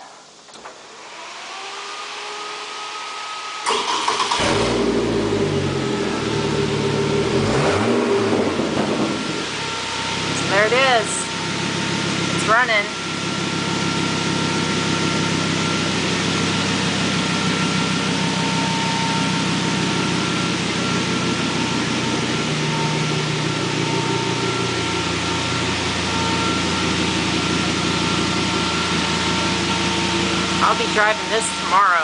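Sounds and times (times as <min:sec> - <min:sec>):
car engine idling: 0:03.6 - 0:32.0
thin steady whine: 0:08.3 - 0:32.0.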